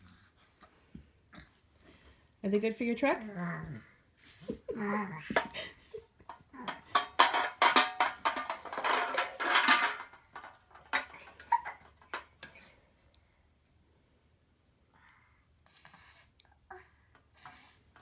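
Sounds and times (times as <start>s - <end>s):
toy blocks clattering: 6.7s - 12.2s.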